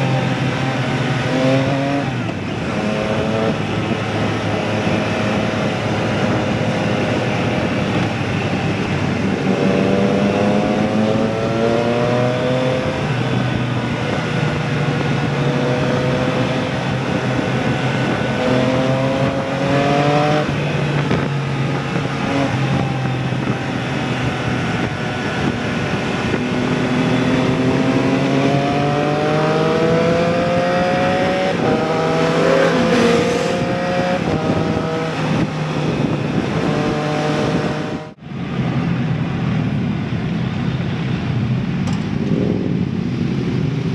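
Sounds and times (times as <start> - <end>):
motorcycle engine accelerating: 27.0 - 38.1
rushing noise: 31.1 - 34.4.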